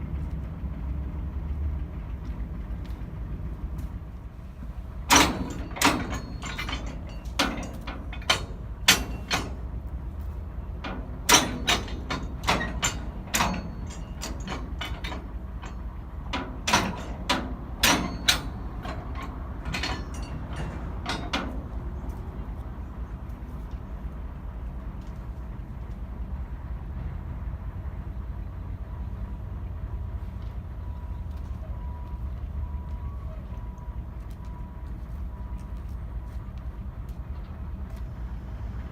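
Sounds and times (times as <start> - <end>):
idling diesel locomotive rumble: 0.0 - 38.9
sharp metallic knocks and clanks: 5.0 - 22.6.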